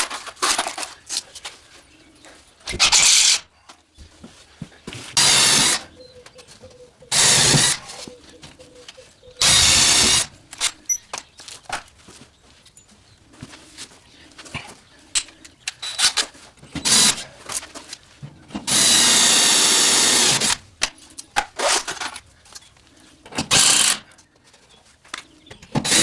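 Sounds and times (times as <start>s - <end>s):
cordless drill driving screws: 5.2s - 5.8s, 7.1s - 7.8s, 9.4s - 10.3s, 16.8s - 17.2s, 18.7s - 20.6s, 23.5s - 24.0s
handling knocks and clicks: 10.5s - 13.0s.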